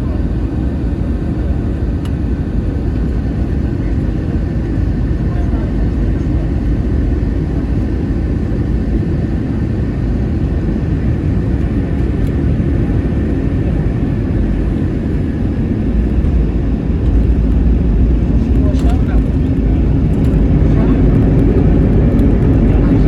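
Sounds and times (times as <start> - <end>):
airliner cabin engine rumble: 0.0 - 23.0.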